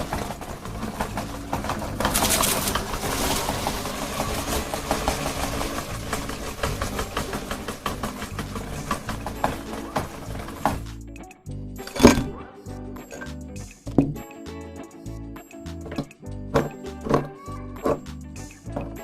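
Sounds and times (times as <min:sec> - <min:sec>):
ice cream cones crackling: 0:00.0 - 0:10.9
meat grinder motor running: 0:00.0 - 0:10.9.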